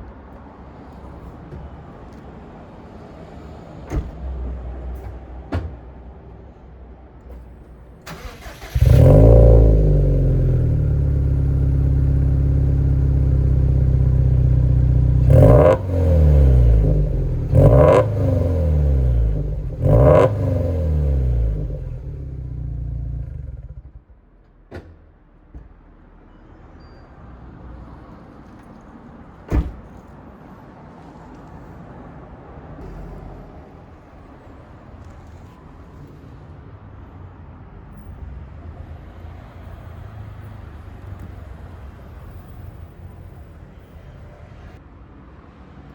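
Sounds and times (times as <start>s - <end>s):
car engine starting and idling: 8.0s - 25.0s
engine revving: 8.1s - 24.0s.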